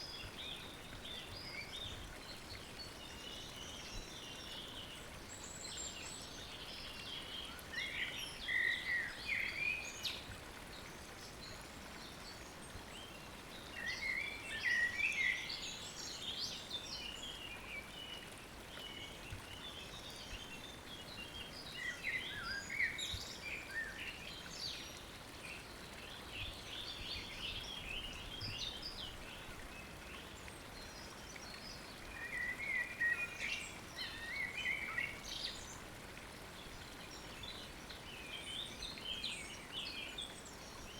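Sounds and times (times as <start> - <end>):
songbirds singing: 0.0 - 35.8.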